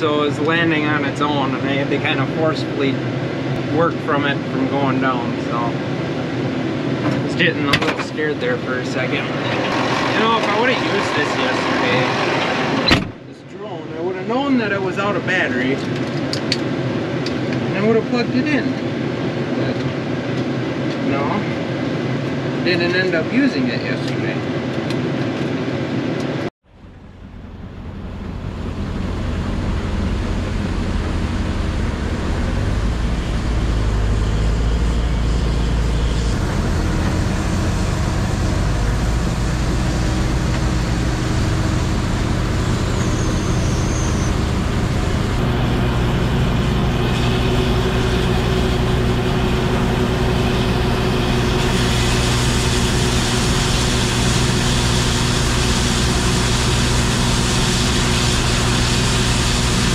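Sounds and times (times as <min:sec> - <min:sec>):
diesel engine running under load: 0:00.0 - 0:13.2, 0:26.7 - 0:59.9.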